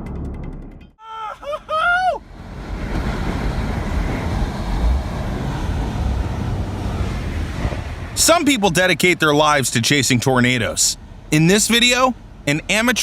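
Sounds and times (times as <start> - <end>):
short vocal cry: 1.0 - 2.2
wind buffeting microphone: 2.2 - 8.8.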